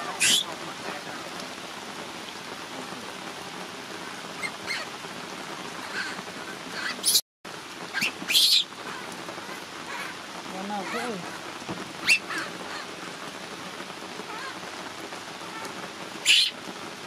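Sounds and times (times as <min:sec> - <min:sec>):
steady rain on wet ground: 0:00.0 - 0:17.0
baby monkey crying: 0:05.8 - 0:07.2, 0:08.0 - 0:09.1, 0:10.8 - 0:11.4, 0:12.0 - 0:12.9, 0:14.3 - 0:14.6, 0:15.5 - 0:16.6.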